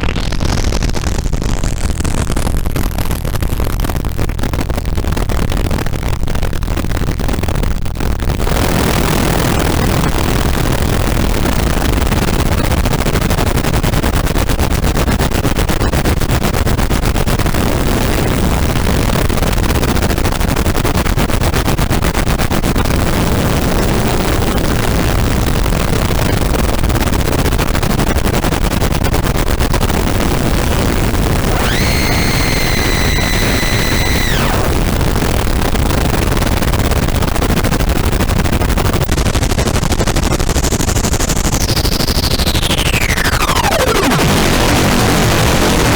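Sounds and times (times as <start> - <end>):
distorted white noise drone: 3.9 - 41.1, 42.4 - 45.9
high steady tone: 31.4 - 35.0.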